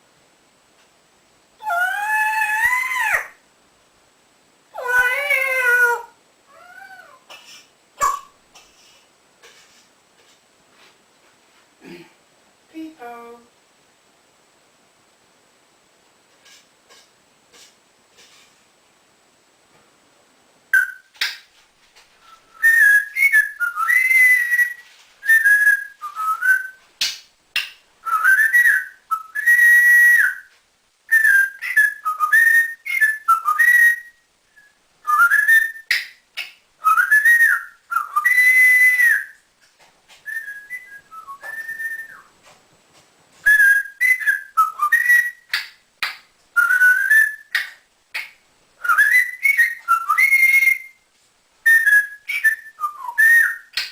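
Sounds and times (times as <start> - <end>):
parrot whistling: 20.8 - 21.4, 22.2 - 27.2, 28.0 - 30.5, 31.1 - 36.1, 36.8 - 39.4, 40.2 - 42.3, 43.5 - 45.6, 46.6 - 51.0, 51.7 - 53.9.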